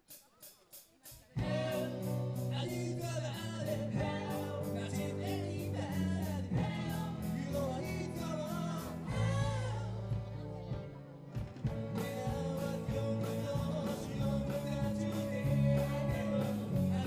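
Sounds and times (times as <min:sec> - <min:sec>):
steady drum beat: 0:00.0 - 0:17.0
person singing: 0:01.3 - 0:10.7, 0:11.8 - 0:17.0
electric guitar: 0:01.4 - 0:17.0.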